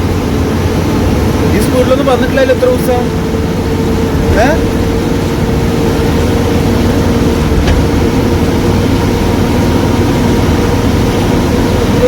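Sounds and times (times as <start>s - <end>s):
constant whine: 0.0s - 12.0s
lorry engine drone: 0.0s - 12.0s
road rumble: 0.0s - 12.0s.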